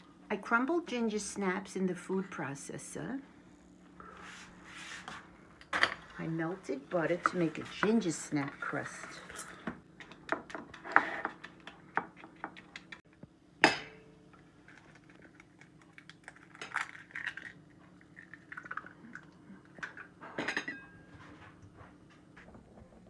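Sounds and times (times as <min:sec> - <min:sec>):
dishes and utensils clinking: 0:19.8 - 0:21.4.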